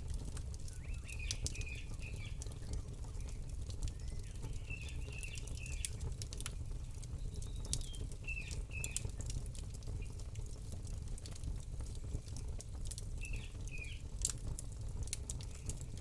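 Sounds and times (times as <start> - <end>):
campfire crackling and popping: 0.0 - 16.0
small bird chirping: 0.7 - 6.0, 7.2 - 9.3, 13.2 - 14.0.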